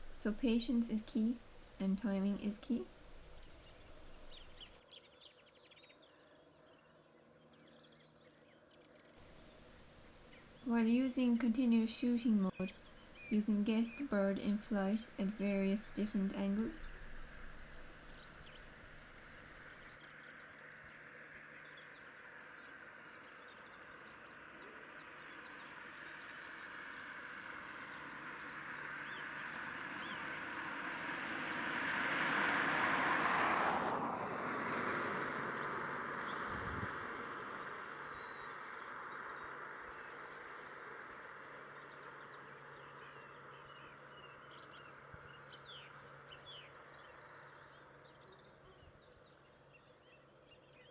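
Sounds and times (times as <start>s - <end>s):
small birds chirping faintly: 0.0s - 30.3s, 35.2s - 50.9s
vehicle passing: 12.6s - 19.9s, 29.5s - 38.1s.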